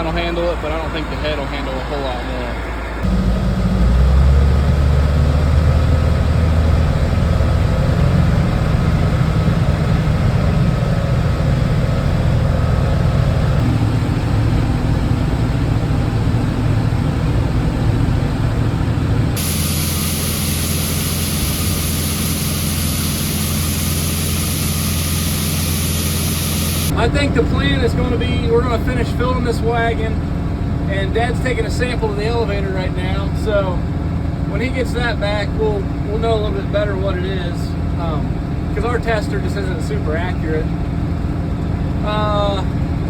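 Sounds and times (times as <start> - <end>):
combine harvester drone: 0.0 - 43.0
loud high hiss: 19.4 - 26.9.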